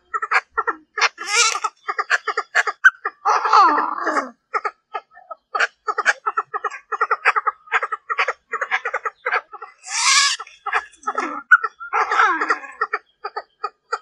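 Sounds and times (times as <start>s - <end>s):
francolin clucking call: 0.0s - 3.4s, 4.6s - 14.0s
harsh bird call: 1.2s - 1.7s, 9.8s - 10.5s
rasping falling bird call: 1.2s - 1.7s, 9.8s - 10.5s.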